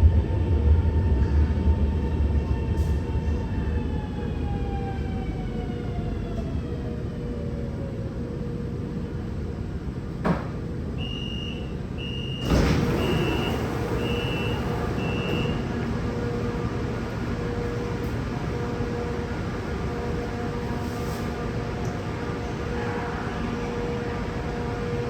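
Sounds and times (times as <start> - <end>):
electric train hum: 0.0 - 25.0
sliding doors thumping shut: 12.4 - 15.9.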